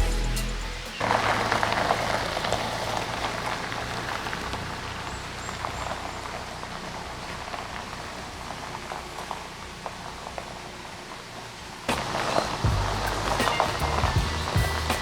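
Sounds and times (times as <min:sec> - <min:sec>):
falling water patter: 0:00.8 - 0:15.0.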